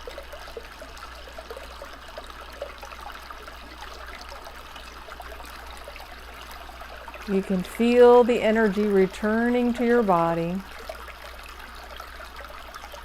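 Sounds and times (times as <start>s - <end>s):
stream trickling and babbling: 0.0s - 13.0s.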